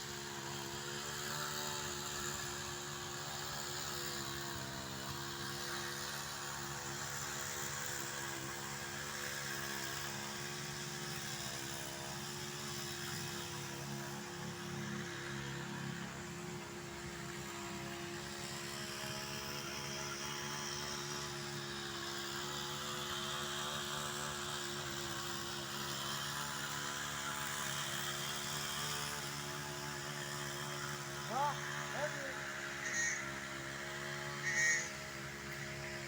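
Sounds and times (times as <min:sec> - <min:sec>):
steady motor hum: 0:00.0 - 0:36.0.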